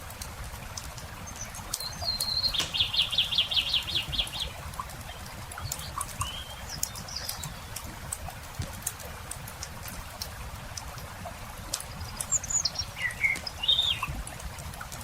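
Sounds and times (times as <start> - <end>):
campfire crackling and popping: 0.0 - 15.0
songbird singing: 1.1 - 8.0, 11.8 - 14.2.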